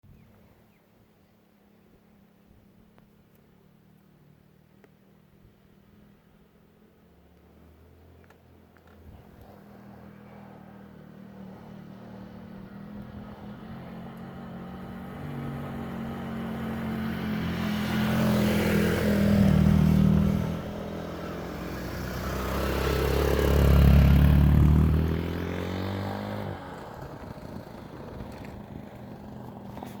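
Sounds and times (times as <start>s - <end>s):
vehicle engine passing close by: 9.0s - 30.0s.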